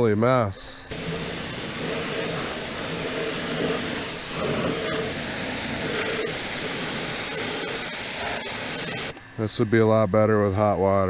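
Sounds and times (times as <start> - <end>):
pressure washer spraying: 0.9 - 9.2.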